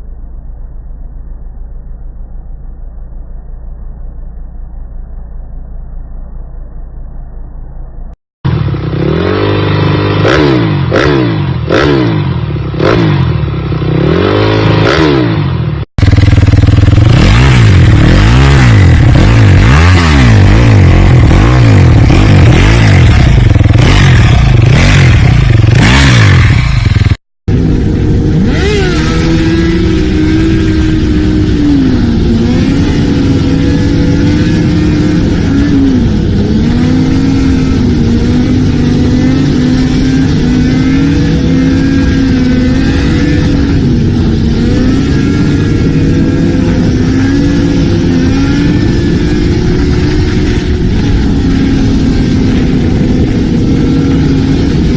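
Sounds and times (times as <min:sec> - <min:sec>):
motorcycle engines revving: 0:08.5 - 0:54.9.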